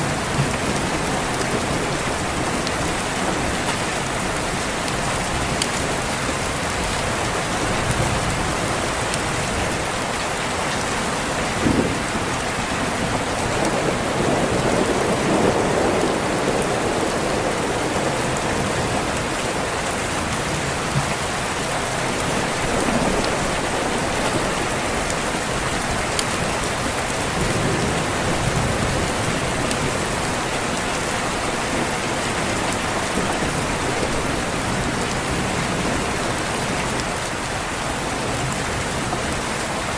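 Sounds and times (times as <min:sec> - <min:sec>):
heavy rain on a window: 0:00.0 - 0:39.9
rumble of thunder: 0:11.5 - 0:19.6, 0:22.0 - 0:30.4.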